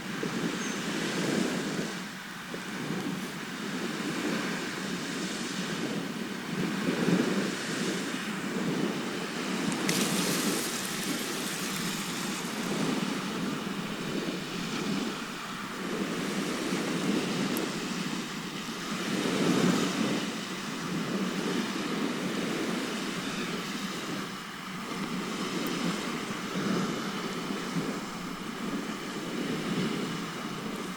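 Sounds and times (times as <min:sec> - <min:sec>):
sea waves washing onto shore: 0:00.1 - 0:30.9.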